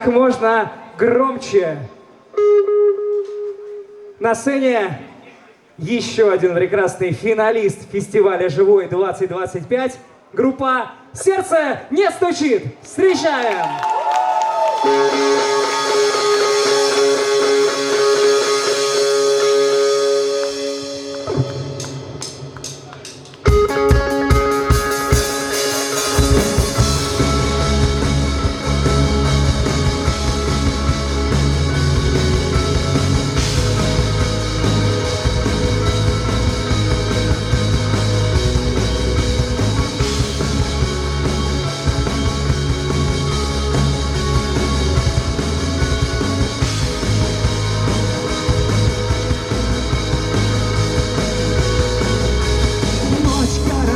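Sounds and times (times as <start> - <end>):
rock band playing live: 14.8 - 53.9
electric guitar chord ringing: 14.9 - 22.6, 23.5 - 53.9.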